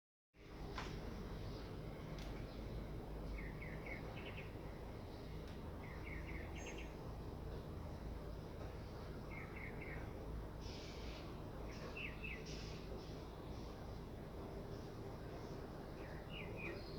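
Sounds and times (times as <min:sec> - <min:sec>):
bird chirping: 0:02.4 - 0:07.0, 0:09.3 - 0:13.2, 0:15.4 - 0:16.9.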